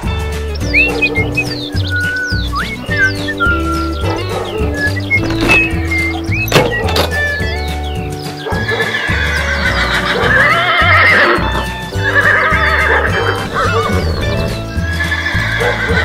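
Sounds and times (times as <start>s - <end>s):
background music with bass line: 0.0s - 16.0s
horse whinnying: 8.7s - 16.0s.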